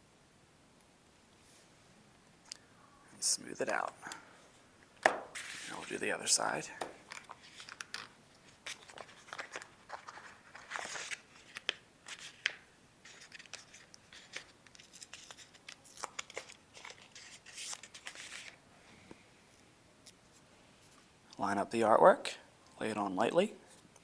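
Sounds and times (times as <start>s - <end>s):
sticker peeling and crinkling: 7.0s - 18.6s.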